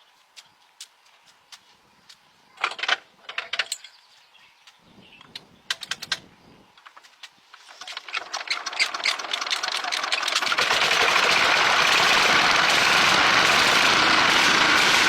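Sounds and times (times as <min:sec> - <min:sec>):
sharp clicks and knocks: 0:05.3 - 0:10.4.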